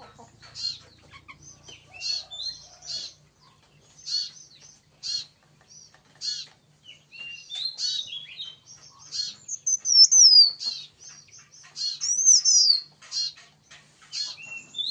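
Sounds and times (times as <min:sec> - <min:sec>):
bird singing chirps and whistles: 0:07.1 - 0:10.9, 0:11.8 - 0:12.9, 0:14.3 - 0:14.9.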